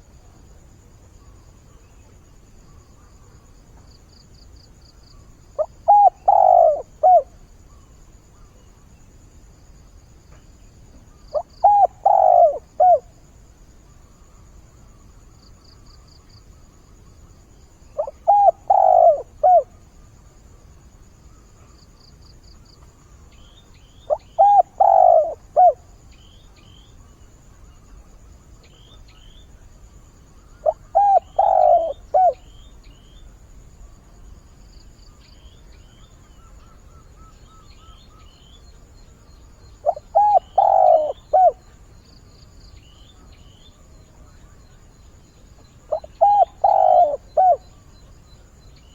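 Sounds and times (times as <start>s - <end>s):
small birds chirping faintly: 0.0s - 48.9s
dove cooing: 5.6s - 7.4s, 11.3s - 13.2s, 18.0s - 19.8s, 24.1s - 25.9s, 30.6s - 32.6s, 39.6s - 41.8s, 45.6s - 47.8s.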